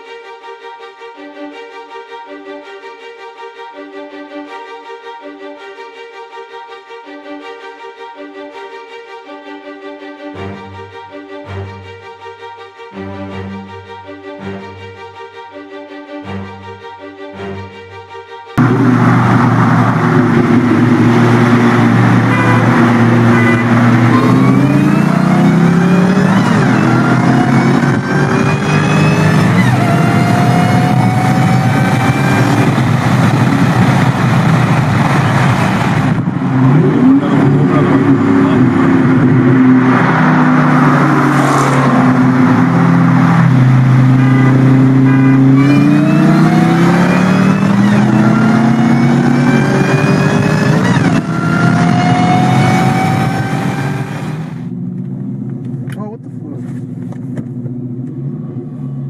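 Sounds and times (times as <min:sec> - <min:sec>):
car engine accelerating hard: 0:18.6 - 0:59.0
high supercharger whine: 0:18.6 - 0:59.0.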